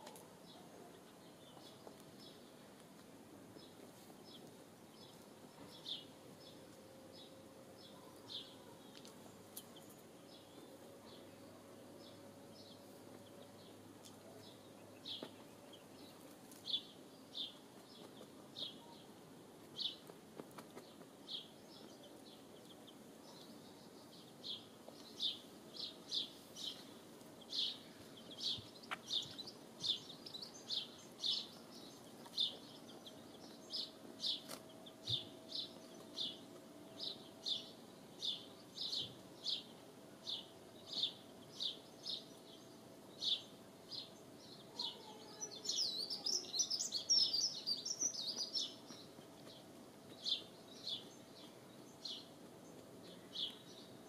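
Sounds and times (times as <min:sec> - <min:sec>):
small bird chirping: 0:03.6 - 0:54.0.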